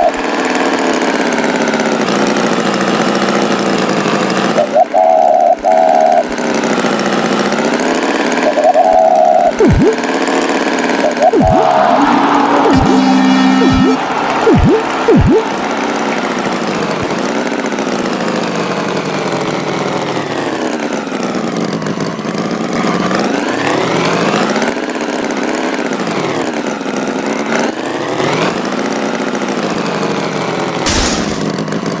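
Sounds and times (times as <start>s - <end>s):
tractor engine revving: 11.0s - 18.1s.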